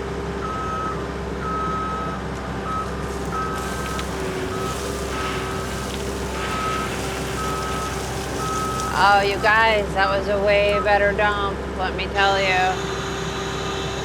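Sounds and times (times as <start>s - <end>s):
heavy equipment engine running: 2.6s - 10.6s
asphalt millings being dumped: 2.6s - 10.7s.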